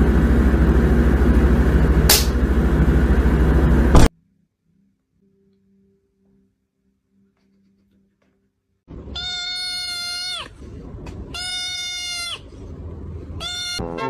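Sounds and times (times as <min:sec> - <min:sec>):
animal calling loudly: 0:09.1 - 0:10.6, 0:11.3 - 0:12.5, 0:13.4 - 0:14.0.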